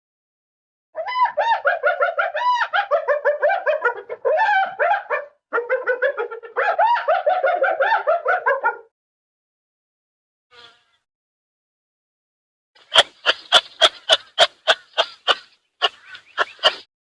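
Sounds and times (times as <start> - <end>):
dog yipping: 1.0 - 8.9.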